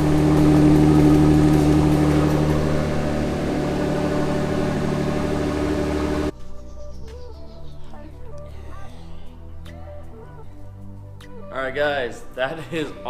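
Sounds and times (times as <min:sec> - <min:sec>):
car engine idling: 0:00.0 - 0:06.3.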